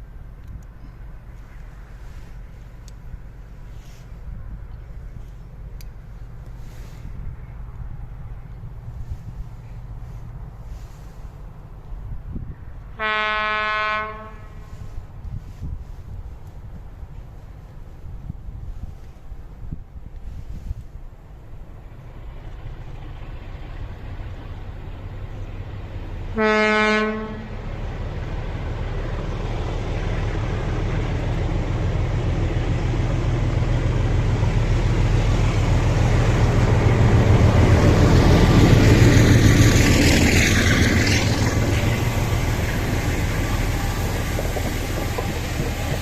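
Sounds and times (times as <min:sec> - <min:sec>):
train rumbling past: 0:00.0 - 0:46.0
train horn: 0:13.0 - 0:15.0, 0:26.3 - 0:27.7.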